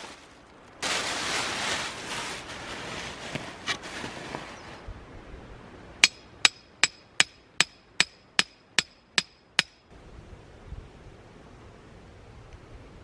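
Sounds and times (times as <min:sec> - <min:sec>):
hammer striking metal tent peg: 0:06.0 - 0:09.9.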